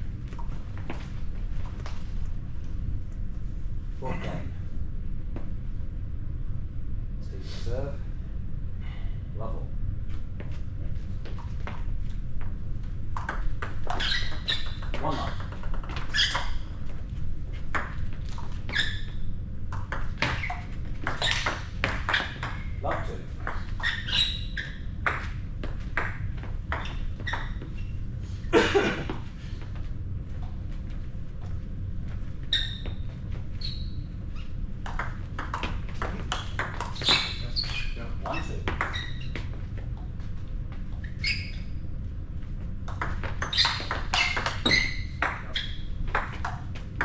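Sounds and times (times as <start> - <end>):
table tennis ball hitting bats and table: 13.1 - 16.8, 17.7 - 18.6, 19.7 - 24.1, 25.0 - 27.7, 34.8 - 39.4, 42.9 - 47.0.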